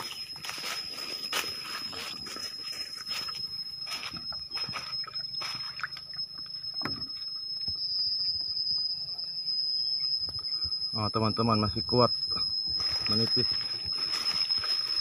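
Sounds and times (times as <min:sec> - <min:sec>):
footsteps through leaf litter: 0:00.0 - 0:05.8, 0:12.8 - 0:15.0
high-pitched whine: 0:00.0 - 0:15.0.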